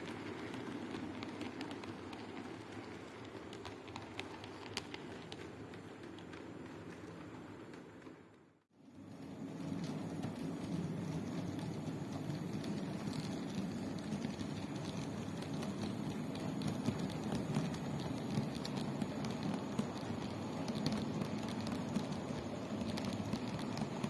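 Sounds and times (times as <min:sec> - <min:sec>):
wheels clicking on rails: 0:00.0 - 0:24.0
model train rumbling on track: 0:09.0 - 0:24.0.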